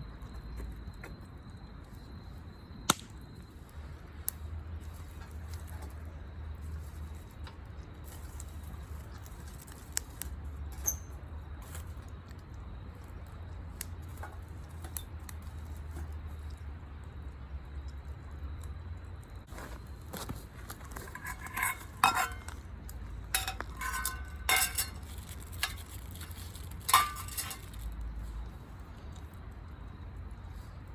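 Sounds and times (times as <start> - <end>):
campfire crackling: 0.1 - 30.9
sharp pops and clicks: 2.8 - 3.4.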